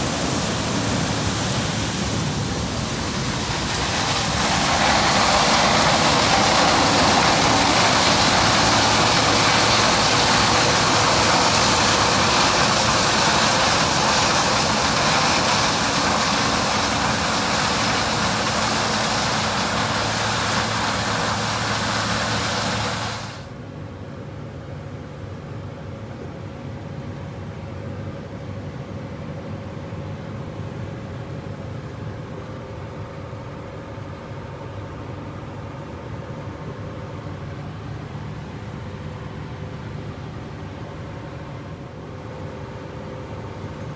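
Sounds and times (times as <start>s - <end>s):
combine harvester machine noise: 0.0s - 23.6s.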